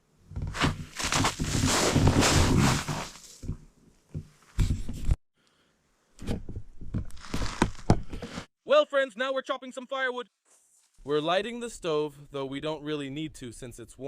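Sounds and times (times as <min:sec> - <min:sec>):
rustling handling noise: 0:00.4 - 0:03.6, 0:07.0 - 0:08.5.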